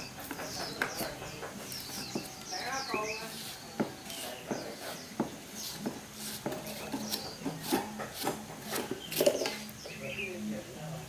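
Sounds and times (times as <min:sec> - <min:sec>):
scraping strokes: 0:02.9 - 0:09.6.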